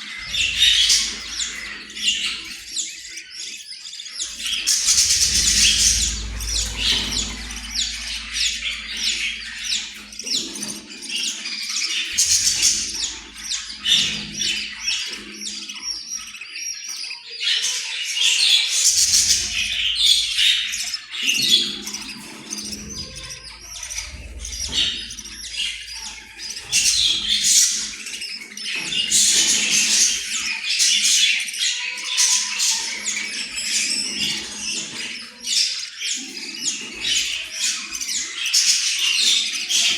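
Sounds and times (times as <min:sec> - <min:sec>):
low rumble: 0:00.2 - 0:02.8, 0:04.2 - 0:15.0, 0:22.5 - 0:27.9.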